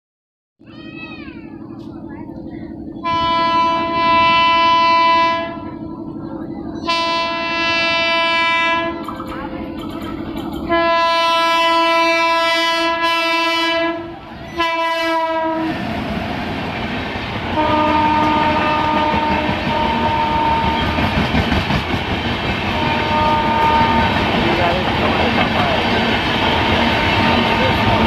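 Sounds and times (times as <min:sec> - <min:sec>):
train running past: 0:00.6 - 0:28.0
train horn blasts: 0:03.0 - 0:05.8, 0:06.8 - 0:09.1, 0:10.7 - 0:15.8, 0:17.5 - 0:21.2, 0:22.6 - 0:24.4.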